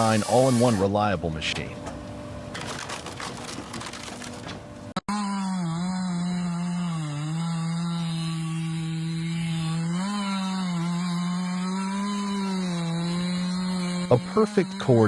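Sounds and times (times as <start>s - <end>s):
chainsaw cutting wood: 0.0s - 1.0s, 5.0s - 15.0s.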